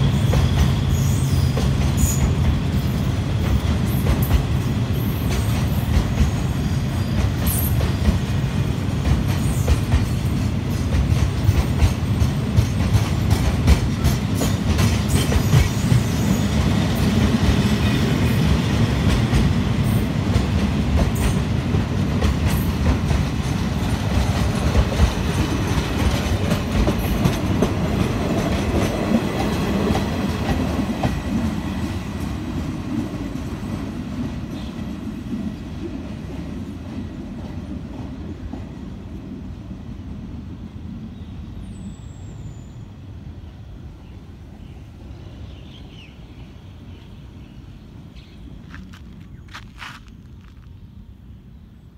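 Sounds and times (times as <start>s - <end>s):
train wheels clacking on rails: 0.0s - 39.2s.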